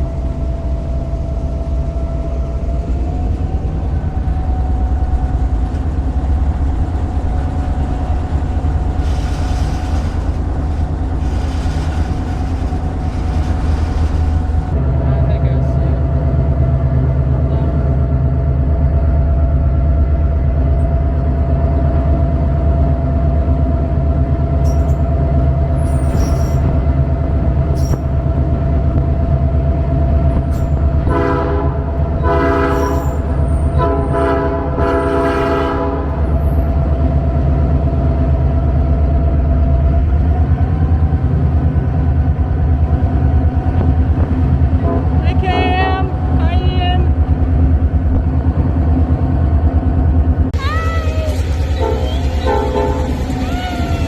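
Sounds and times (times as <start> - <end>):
diesel locomotive engine running: 0.0 - 54.0
air horn blasts: 31.1 - 33.1, 33.8 - 36.2, 51.8 - 53.1.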